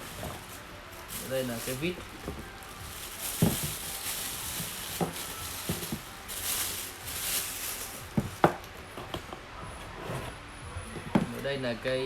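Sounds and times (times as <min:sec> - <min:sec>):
handling rustle: 0:00.0 - 0:09.3.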